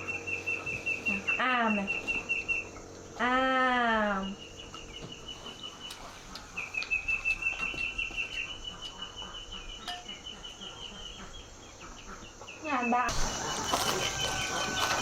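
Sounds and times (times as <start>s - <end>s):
animal high pulsing trill: 0.0s - 11.6s.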